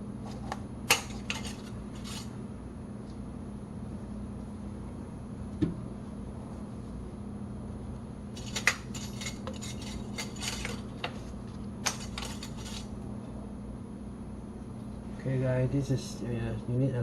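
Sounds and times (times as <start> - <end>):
steady low hum: 0.0 - 17.0
containers and tools clinking: 8.4 - 11.2, 11.9 - 12.9.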